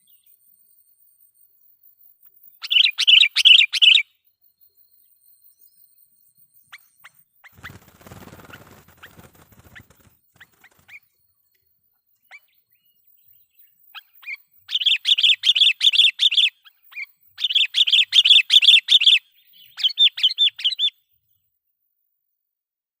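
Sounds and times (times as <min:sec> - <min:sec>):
rapid repeated bird notes: 0:06.5 - 0:20.9.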